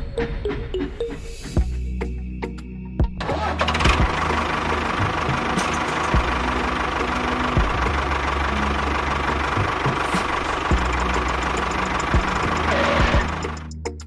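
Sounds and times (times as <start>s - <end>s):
tractor engine knocking: 3.3s - 13.7s.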